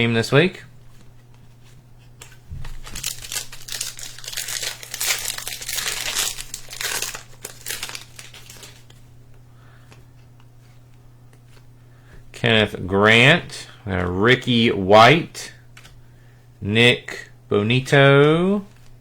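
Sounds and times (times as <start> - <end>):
wrapper crinkling and tearing: 2.2 - 9.0.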